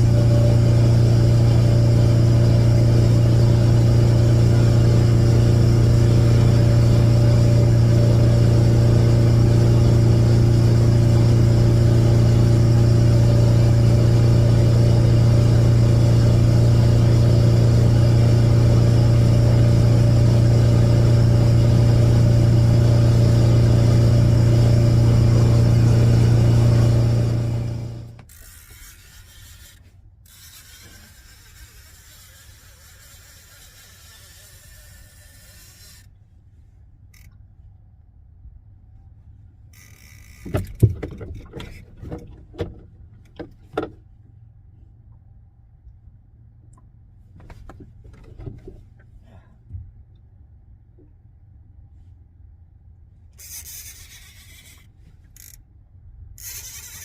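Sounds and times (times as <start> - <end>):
boat engine droning: 0.0 - 36.1.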